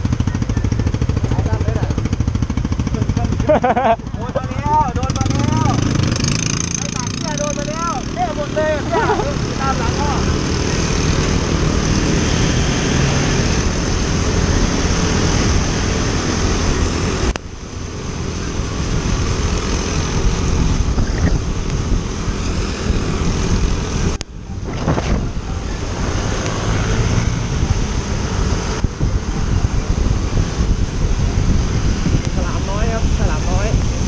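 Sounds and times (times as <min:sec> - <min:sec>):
scooter engine and road noise: 0:00.0 - 0:34.0
wind rushing over microphone: 0:08.3 - 0:34.0.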